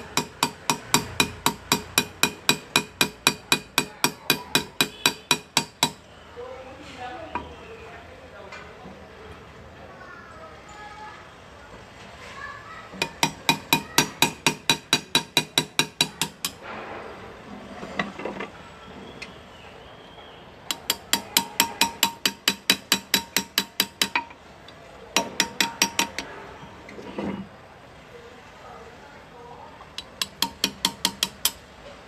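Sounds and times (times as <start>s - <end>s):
small hammer tapping graver on metal: 0.0s - 6.0s, 13.0s - 16.6s, 20.7s - 24.4s, 25.2s - 26.3s, 30.0s - 31.6s.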